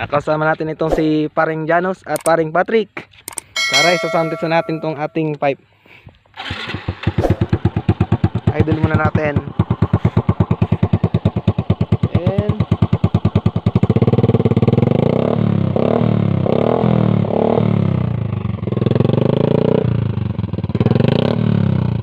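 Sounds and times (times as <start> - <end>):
motorcycle engine idling and revving: 6.4 - 22.0.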